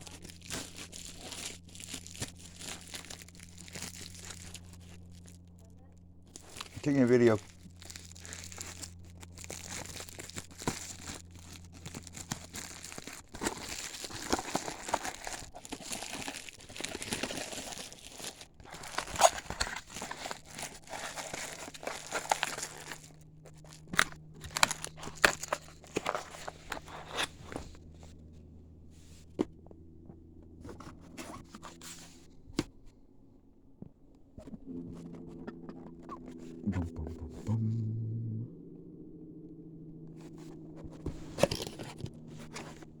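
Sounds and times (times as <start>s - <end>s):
plastic packaging crinkling: 0.0s - 5.4s, 6.3s - 27.2s
faint low hum: 0.0s - 13.7s, 34.4s - 43.0s.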